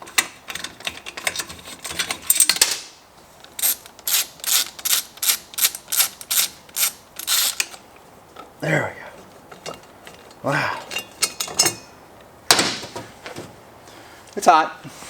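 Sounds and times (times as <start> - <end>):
ratchet wrench clicking: 3.5 - 7.8.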